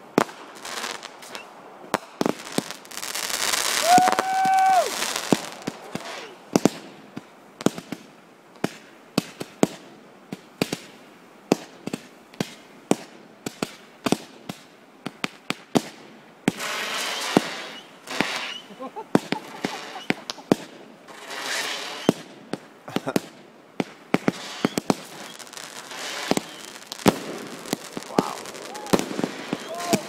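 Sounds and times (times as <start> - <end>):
firework whistle: 3.6 - 6.4, 16.6 - 20.4, 21.1 - 22.2, 24.3 - 27.4, 28.0 - 30.0
fireworks popping and banging: 11.5 - 30.0
firework hissing rush: 16.5 - 22.2, 24.2 - 30.0.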